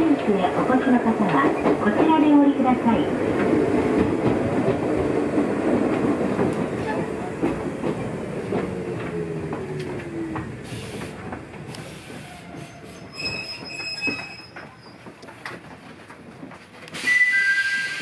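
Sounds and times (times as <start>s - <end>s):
train running: 0.0s - 18.0s
wheels clicking over rail joints: 3.2s - 17.0s
high wheel squeal: 12.3s - 15.1s, 17.0s - 18.0s.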